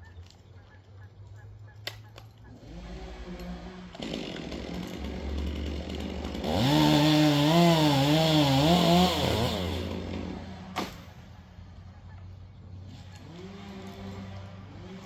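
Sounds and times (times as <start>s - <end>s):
chainsaw revving and cutting: 2.5s - 11.0s, 12.8s - 15.0s.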